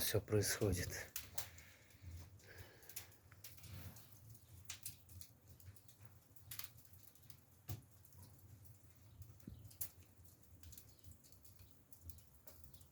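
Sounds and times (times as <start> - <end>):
firewood crackling in stove: 0.0 - 12.9.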